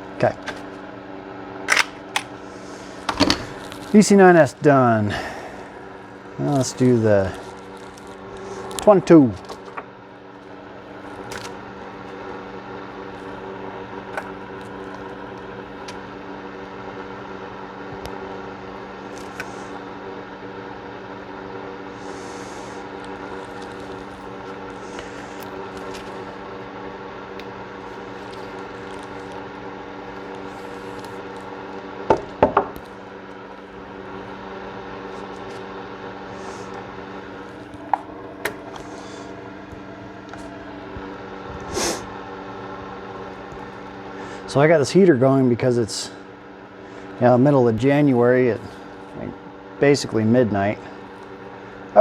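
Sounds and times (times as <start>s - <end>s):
heater humming: 0.0s - 52.0s
gun parts clicking: 1.7s - 2.3s.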